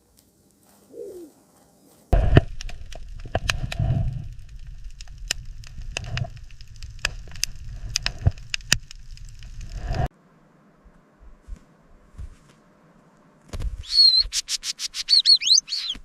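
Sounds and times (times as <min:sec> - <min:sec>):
low rumble: 0:02.2 - 0:10.1
sharp cracks and snaps: 0:02.2 - 0:10.1.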